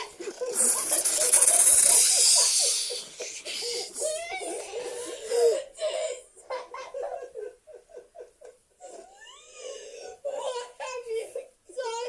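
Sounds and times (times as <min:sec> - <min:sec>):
children laughing: 0:00.0 - 0:11.5
loud breathy hiss: 0:00.4 - 0:04.1.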